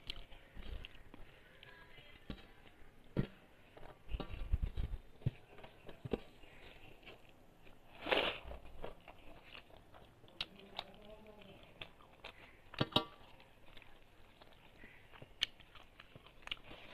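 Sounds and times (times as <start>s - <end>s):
person chewing food: 0.0s - 1.8s, 2.5s - 16.9s.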